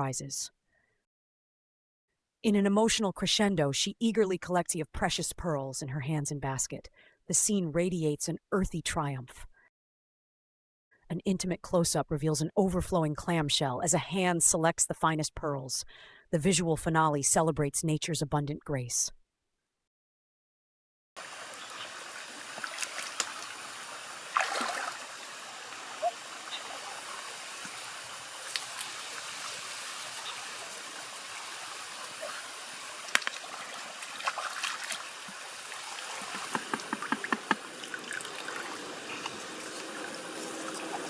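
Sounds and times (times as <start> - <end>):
small splashes: 21.2 - 41.0
stream water trickling: 21.2 - 41.0.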